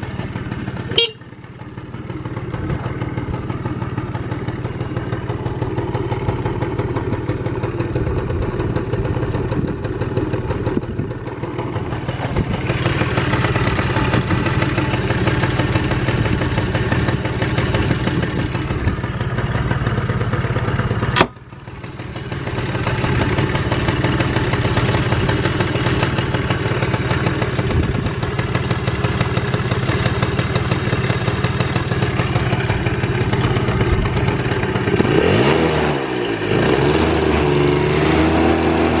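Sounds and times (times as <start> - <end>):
scooter engine idling: 0.0 - 35.5
sharp click: 21.2 - 21.4.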